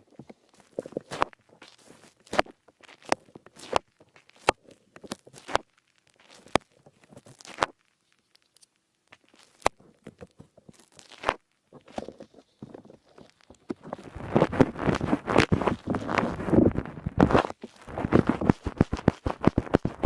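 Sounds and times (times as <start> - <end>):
kneading microphone ear: 0.0 - 8.5, 9.1 - 20.0
sponge scratching microphone: 11.0 - 20.0.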